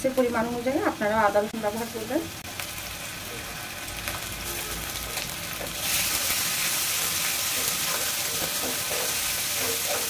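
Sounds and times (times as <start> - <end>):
onions sizzling in hot oil: 0.0 - 10.0
metal spatula stirring: 6.8 - 10.0.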